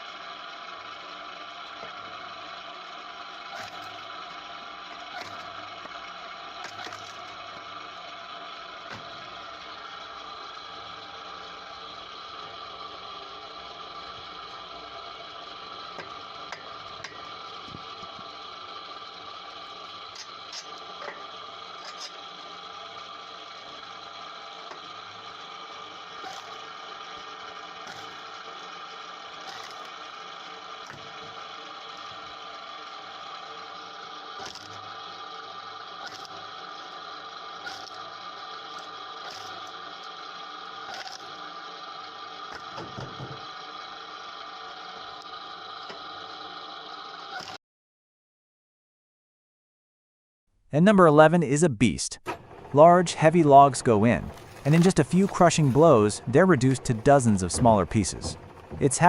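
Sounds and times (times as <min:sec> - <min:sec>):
firewood machine humming: 0:00.0 - 0:47.6, 0:52.2 - 0:59.0
sharp machine knocks: 0:54.2 - 0:59.0.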